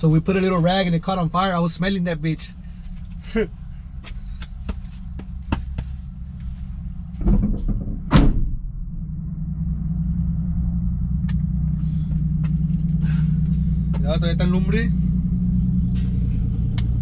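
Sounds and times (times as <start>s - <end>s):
truck engine idling rumble: 0.0s - 17.0s
loud thumps: 7.0s - 9.0s.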